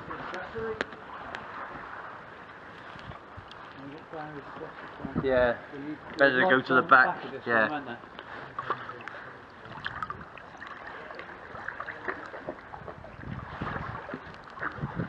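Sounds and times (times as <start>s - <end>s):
water splashing around boat: 0.0s - 15.0s.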